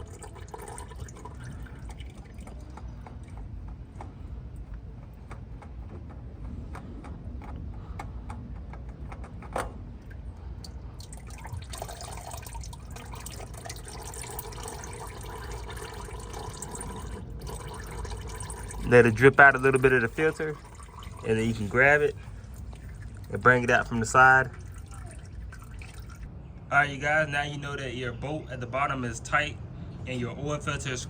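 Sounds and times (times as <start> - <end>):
oil dripping into pan: 0.0 - 3.5, 10.0 - 26.3.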